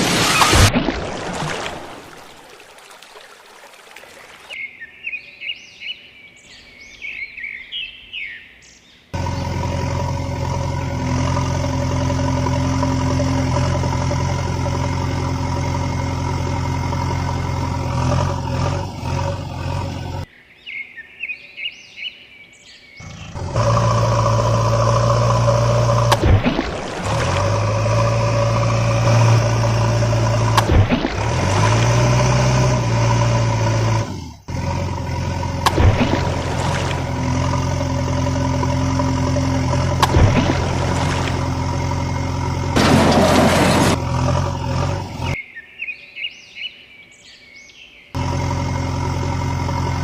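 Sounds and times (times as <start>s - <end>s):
birds chirping: 1.6s - 50.0s
vehicle engine running: 9.2s - 20.3s, 23.0s - 45.4s, 48.2s - 50.0s.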